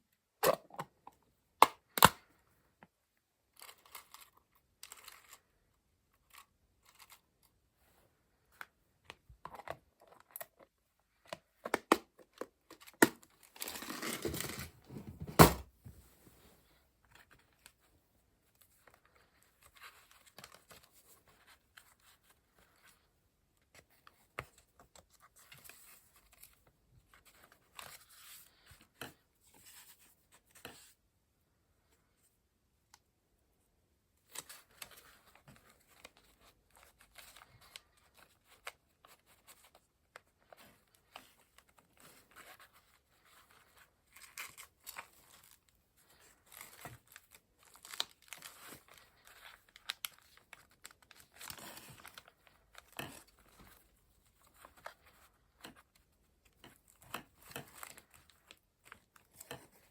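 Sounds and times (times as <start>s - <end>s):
paper rustling and crinkling: 12.8s - 16.4s, 34.3s - 59.9s.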